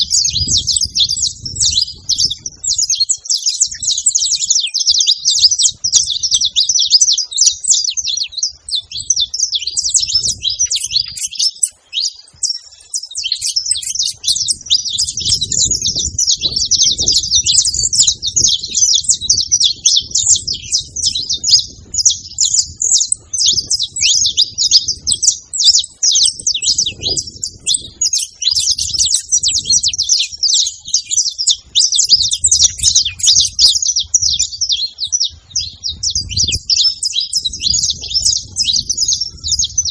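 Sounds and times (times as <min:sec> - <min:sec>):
finch singing: 0:00.0 - 0:39.9.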